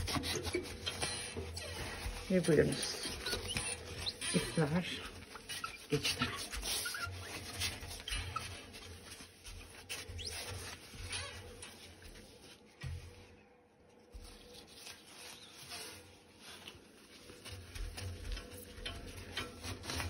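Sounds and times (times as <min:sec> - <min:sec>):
faint rustling: 0:00.0 - 0:20.0.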